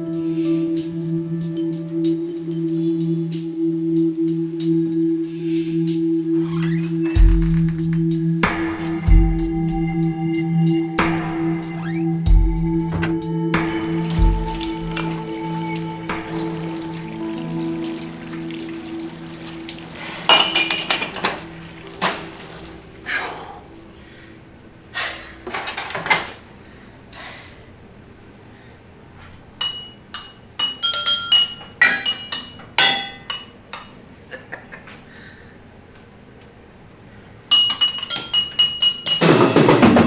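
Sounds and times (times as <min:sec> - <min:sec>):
sharp ringing clinks: 0:37.5 - 0:39.2.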